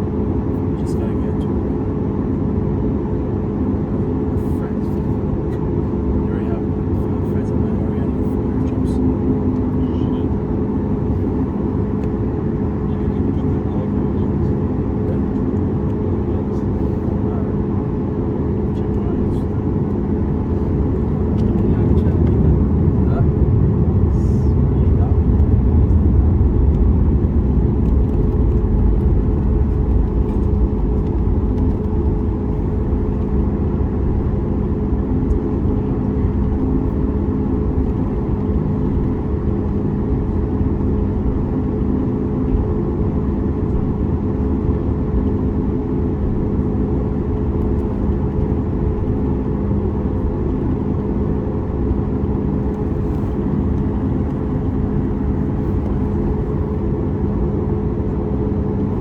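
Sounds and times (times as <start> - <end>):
aircraft cabin engine drone: 0.0 - 59.0.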